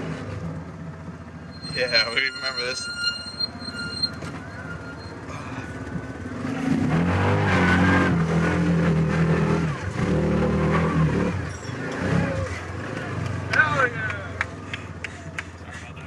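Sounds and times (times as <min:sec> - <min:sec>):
engine revving under load: 0:04.1 - 0:15.5.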